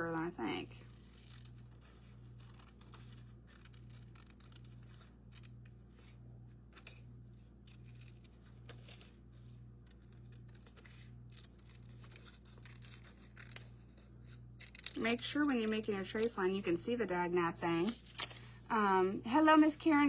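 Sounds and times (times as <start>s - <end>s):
scissors snipping: 0.9s - 5.8s, 7.6s - 9.2s, 9.8s - 16.4s.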